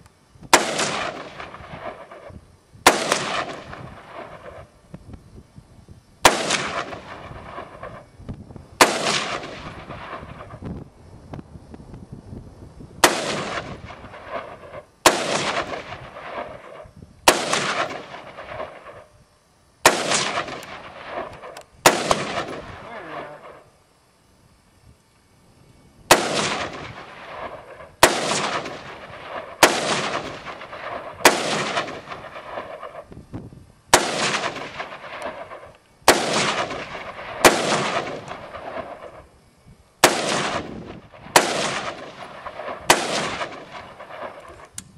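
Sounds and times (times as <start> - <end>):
rifle shots with echo: 0.5 - 4.7, 6.2 - 8.1, 8.8 - 10.6, 13.0 - 19.1, 19.8 - 23.6, 26.1 - 33.1, 33.9 - 39.2, 40.0 - 44.7.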